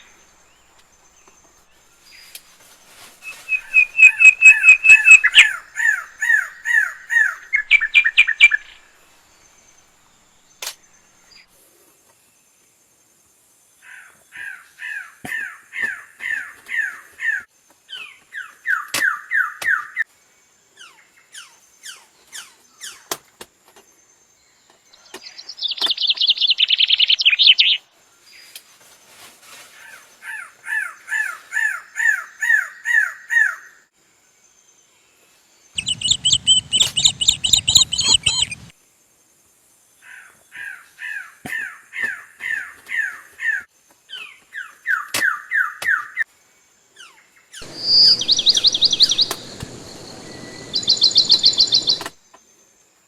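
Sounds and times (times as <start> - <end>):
bird harsh downslurred calls: 3.2 - 8.8, 35.8 - 38.7, 47.6 - 52.2
bird harsh rasping burst: 3.4 - 6.5, 47.6 - 52.2.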